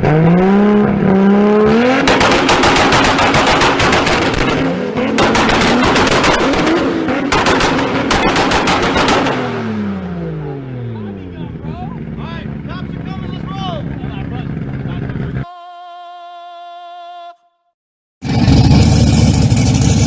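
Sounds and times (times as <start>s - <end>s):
car engine revving: 0.0s - 15.5s, 18.2s - 20.0s
exhaust pops and crackles: 2.0s - 9.5s.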